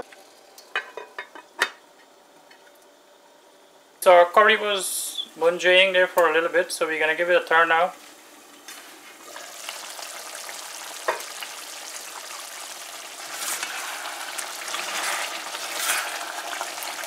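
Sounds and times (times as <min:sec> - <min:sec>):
meat sizzling in a pot: 0:08.0 - 0:17.0
spatula scraping a pot: 0:13.2 - 0:16.8.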